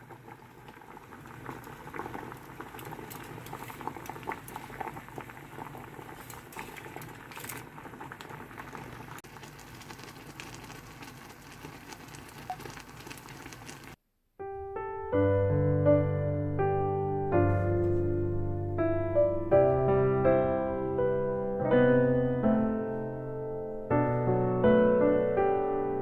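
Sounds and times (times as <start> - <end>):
pot bubbling as it boils: 0.0 - 14.0
gentle piano music: 14.4 - 26.0.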